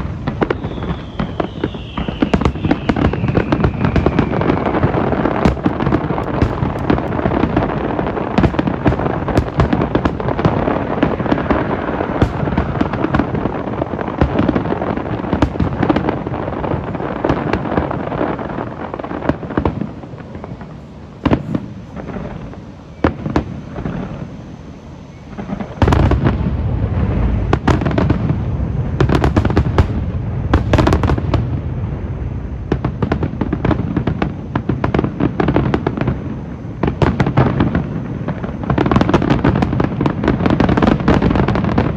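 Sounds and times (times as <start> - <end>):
loud firework boom: 0.0 - 16.8
fireworks bangs and crackle: 0.0 - 41.9.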